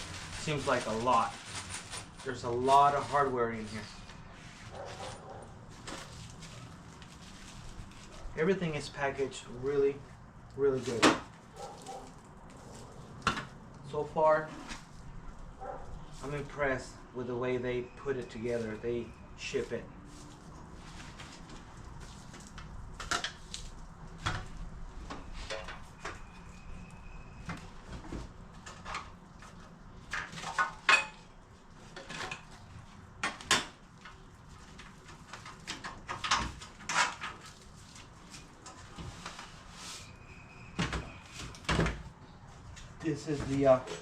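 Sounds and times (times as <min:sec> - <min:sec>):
packaging rustling: 0:00.0 - 0:04.1.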